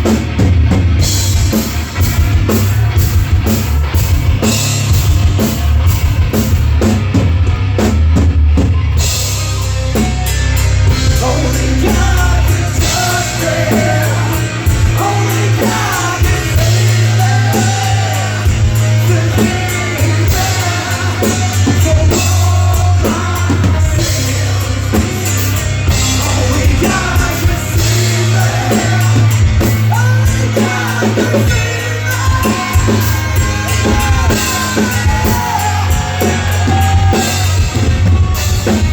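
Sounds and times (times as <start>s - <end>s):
bass guitar: 0.0s - 38.9s
distorted electric guitars: 0.0s - 38.9s
pounding drum kit: 0.0s - 38.9s
person singing: 11.0s - 38.9s.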